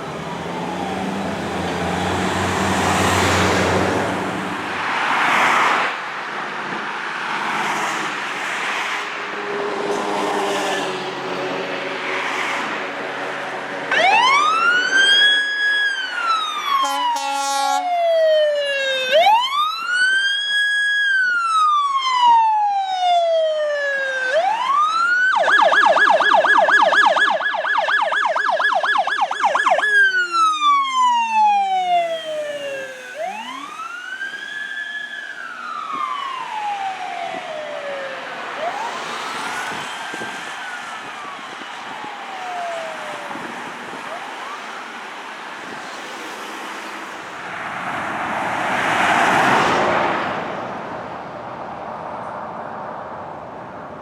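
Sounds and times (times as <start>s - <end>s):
ambulance siren: 0.0s - 5.6s, 13.9s - 47.5s
passing traffic: 0.0s - 54.0s
horn blast: 16.8s - 17.8s.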